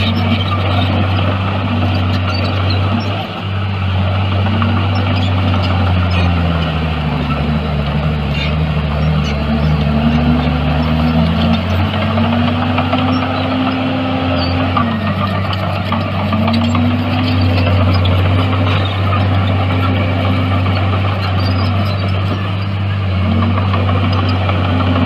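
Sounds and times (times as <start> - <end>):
diesel machine engine: 0.0 - 25.0.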